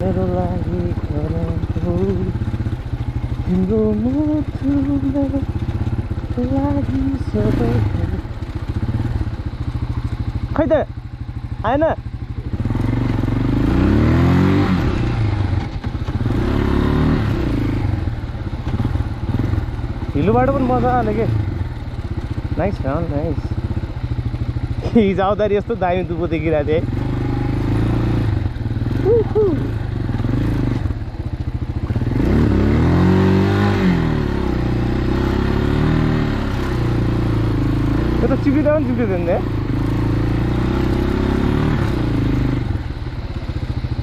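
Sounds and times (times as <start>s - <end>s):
dirt bike engine revving: 0.0s - 43.2s.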